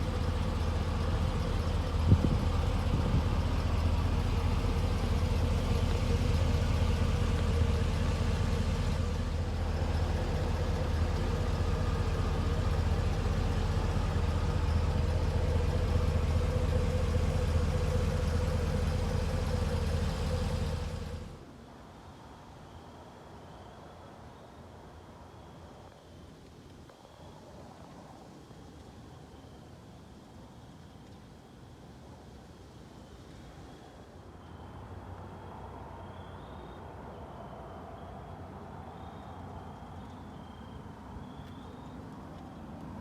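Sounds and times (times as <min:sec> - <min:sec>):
truck engine idling: 0:00.0 - 0:21.4.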